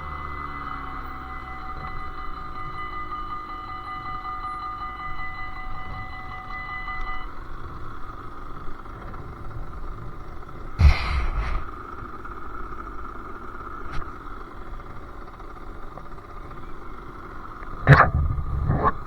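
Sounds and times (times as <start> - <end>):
two-stroke motorcycle engine running: 0.0 - 3.2, 7.4 - 19.0
loud thump: 10.8 - 11.7
sharp click: 10.8 - 11.7.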